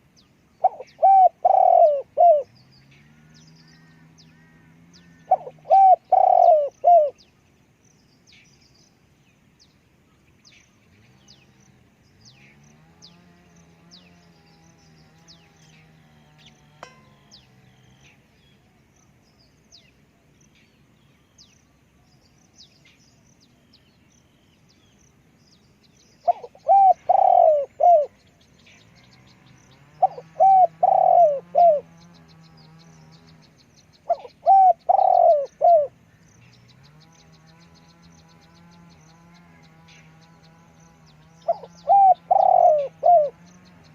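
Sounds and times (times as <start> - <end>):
dove cooing: 0.6 - 2.6, 5.2 - 7.2, 26.2 - 28.2, 29.9 - 32.0, 34.0 - 36.0, 41.4 - 43.9
low steady hum: 13.1 - 27.0.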